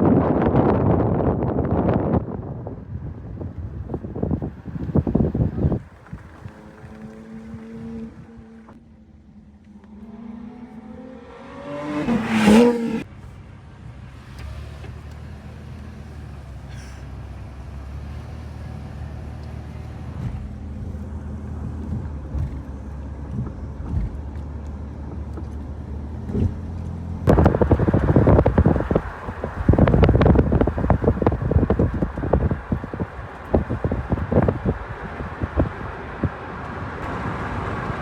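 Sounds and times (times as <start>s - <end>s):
wind gust noise: 0.0s - 8.6s, 10.8s - 13.1s, 27.3s - 38.0s
engine revving up: 6.5s - 13.1s
steady low rumble: 19.2s - 38.0s.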